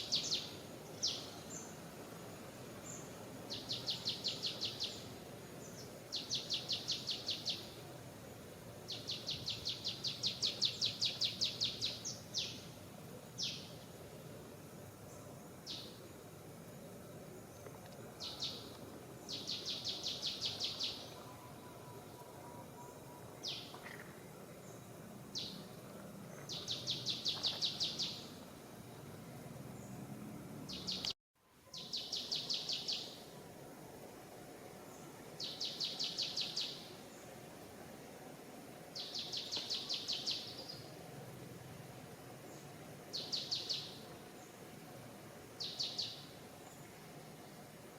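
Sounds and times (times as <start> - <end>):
bird singing trills: 0.0 - 1.7, 2.9 - 7.8, 8.9 - 12.7, 13.4 - 13.7, 18.2 - 24.0, 26.3 - 28.3, 30.7 - 33.2, 35.4 - 36.9, 39.0 - 40.9, 43.1 - 44.0, 45.6 - 46.3
background hiss: 0.0 - 47.9.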